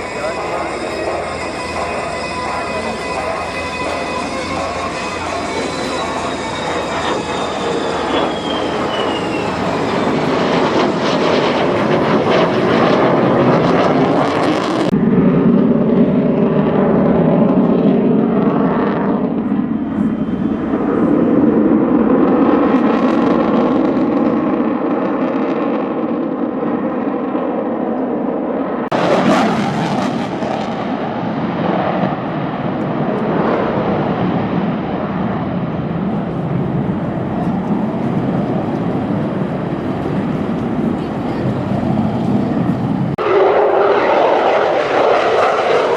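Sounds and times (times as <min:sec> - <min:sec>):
engine whine falling in pitch: 0:00.0 - 0:26.3
aircraft engine droning: 0:00.0 - 0:45.9.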